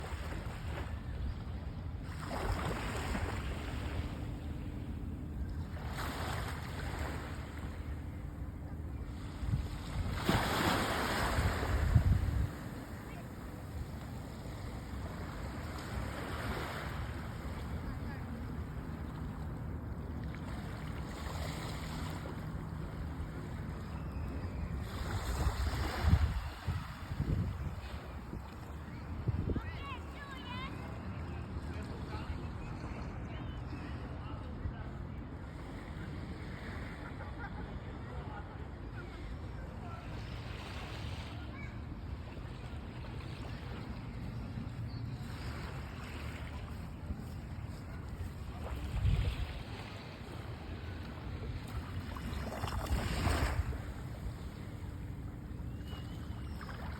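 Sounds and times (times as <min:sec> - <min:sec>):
sea waves washing on beach: 0:02.0 - 0:23.8
sea waves washing up beach: 0:09.0 - 0:23.7, 0:45.3 - 0:55.5
wind rumbling on microphone: 0:11.3 - 0:13.0, 0:25.4 - 0:30.0, 0:46.7 - 0:50.7.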